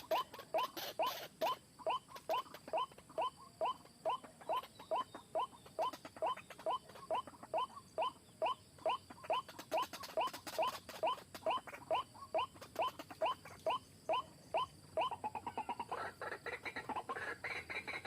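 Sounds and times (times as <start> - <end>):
waterhen calling: 0.0 - 18.0.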